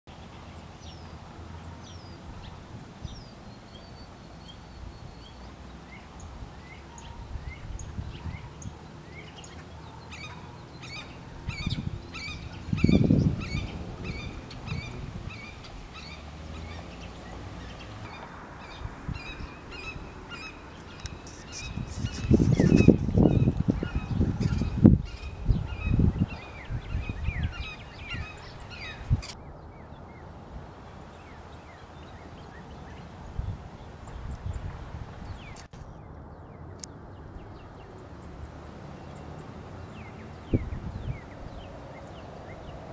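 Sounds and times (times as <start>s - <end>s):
wind rumble on microphone: 0.2s - 42.9s
hawks calling loudly: 9.5s - 16.9s.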